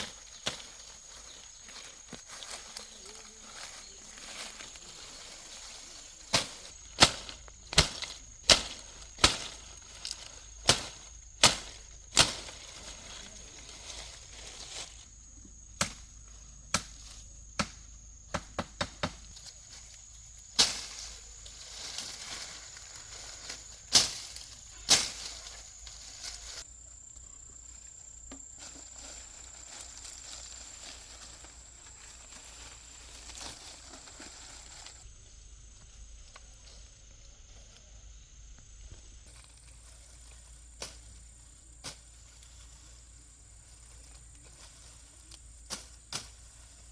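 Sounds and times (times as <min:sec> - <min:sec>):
high insect drone: 0:00.0 - 0:46.9
sharp chopping strikes: 0:06.3 - 0:09.6, 0:10.6 - 0:12.5, 0:15.8 - 0:16.1.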